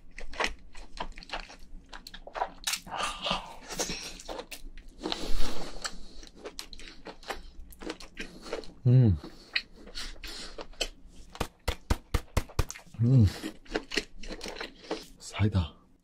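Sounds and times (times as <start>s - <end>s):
person chewing: 0.0s - 15.2s
wet mouth clicks: 10.7s - 12.9s.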